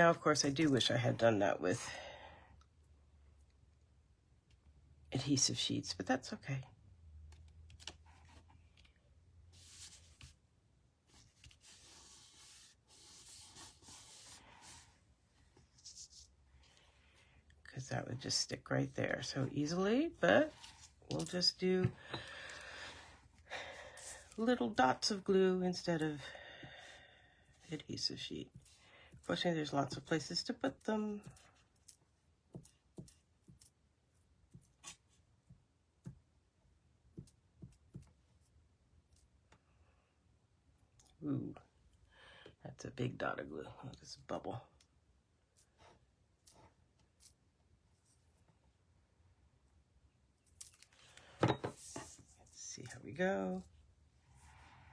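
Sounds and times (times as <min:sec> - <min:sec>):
paper and card rustling: 0:09.6 - 0:10.4, 0:50.5 - 0:53.0.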